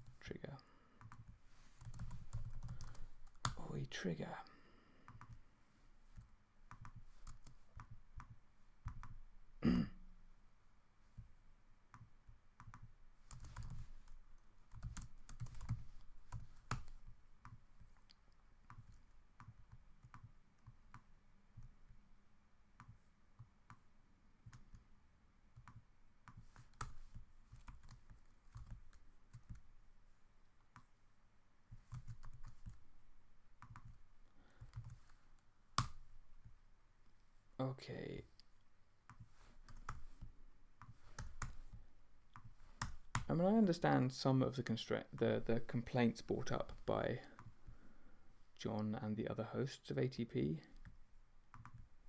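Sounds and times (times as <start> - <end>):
keyboard clicking: 1.0 - 3.6, 11.9 - 18.1, 31.8 - 32.9, 34.6 - 35.2, 39.1 - 43.3, 50.8 - 51.9.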